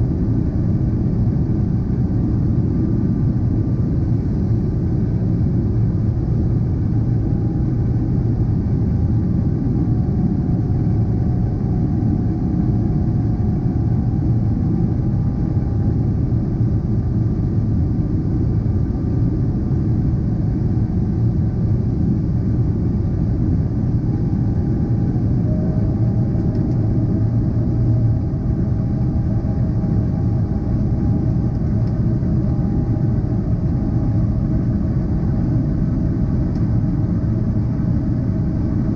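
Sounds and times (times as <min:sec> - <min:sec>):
jet engines rumbling: 0:17.4 - 0:38.9.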